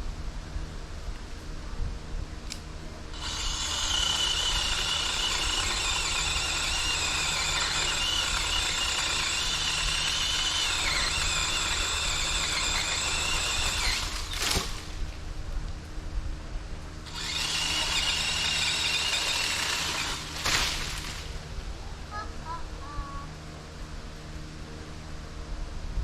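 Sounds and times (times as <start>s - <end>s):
electric pole saw motor whine: 3.1s - 15.0s, 17.0s - 21.3s.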